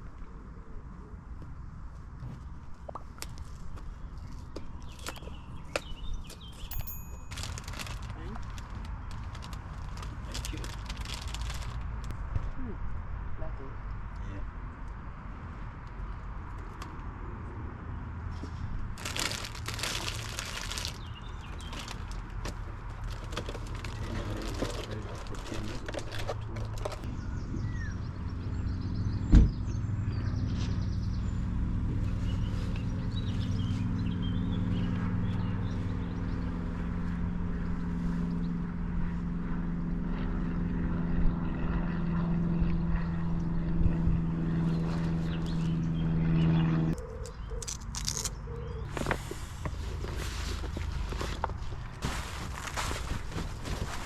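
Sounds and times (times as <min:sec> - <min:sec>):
vehicle engine humming: 0:01.2 - 0:13.4, 0:14.0 - 0:54.0
sharp thump: 0:29.3 - 0:29.6.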